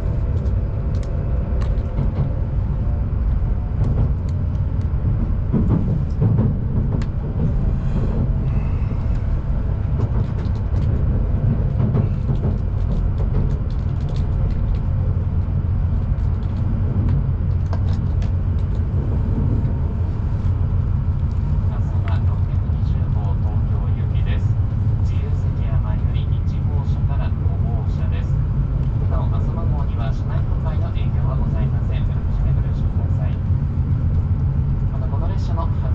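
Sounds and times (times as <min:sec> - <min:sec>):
train low rumble: 0:00.0 - 0:35.9
light clicks and rattles: 0:00.3 - 0:02.4, 0:09.0 - 0:19.7.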